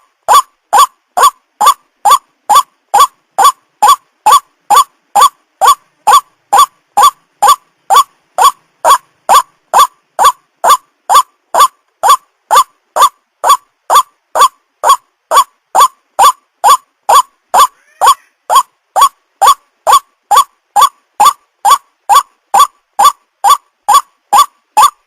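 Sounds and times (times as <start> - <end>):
waterhen calling: 0.3 - 25.0.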